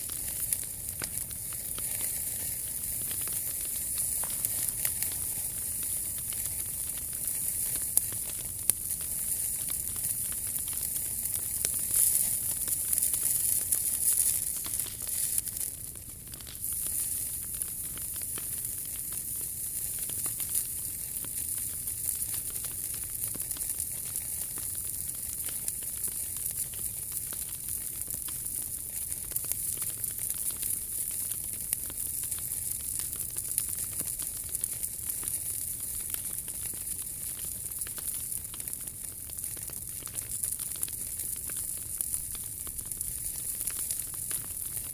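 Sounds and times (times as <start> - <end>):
wood fire crackling and popping: 0.0 - 44.9.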